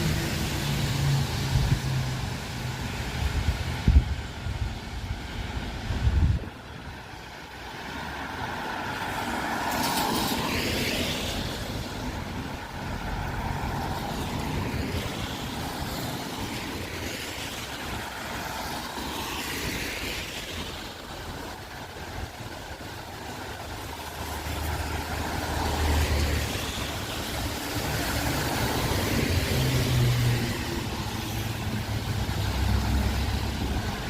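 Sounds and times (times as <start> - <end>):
tyres hissing on wet road: 0.0 - 34.0
wind buffeting microphone: 1.3 - 8.4.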